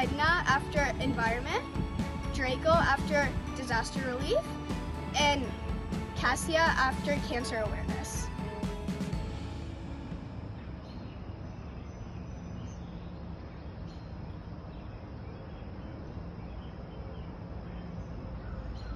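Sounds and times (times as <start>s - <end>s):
low hum: 0.0s - 14.8s.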